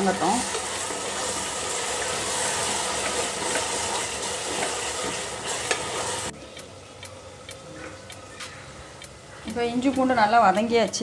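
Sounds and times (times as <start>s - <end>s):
paste sizzling in a pot: 0.0s - 6.3s.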